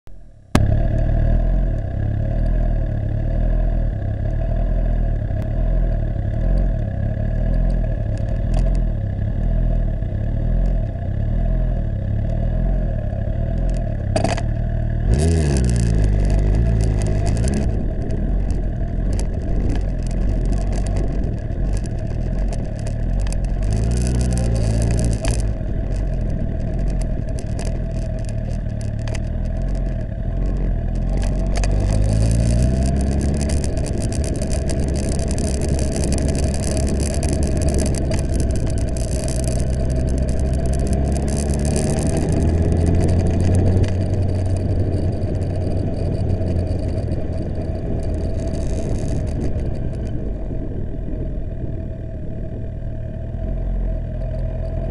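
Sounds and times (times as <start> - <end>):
motorcycle engine rumbling: 0.0 - 54.9.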